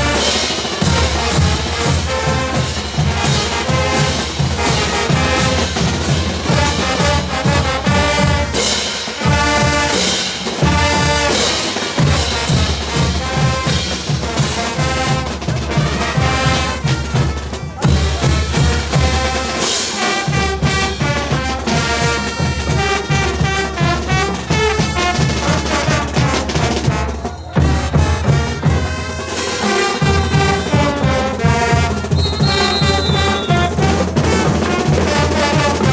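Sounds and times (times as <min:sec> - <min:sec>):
bass drum and percussion beat: 0:00.0 - 0:35.9
trumpets and trombones: 0:00.0 - 0:35.9.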